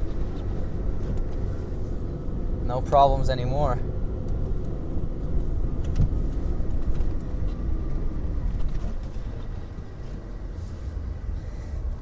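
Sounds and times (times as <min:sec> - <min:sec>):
engine rumbling under load: 0:00.0 - 0:12.0.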